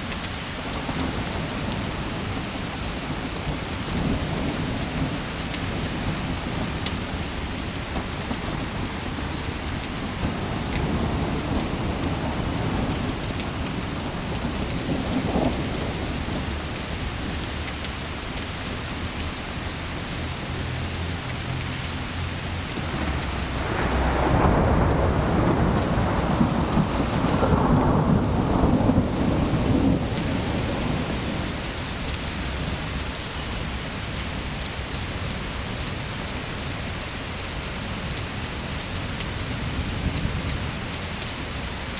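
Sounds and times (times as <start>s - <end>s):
heavy rain hissing: 0.0s - 41.9s
thunder rumbling: 0.7s - 17.6s, 22.3s - 33.8s.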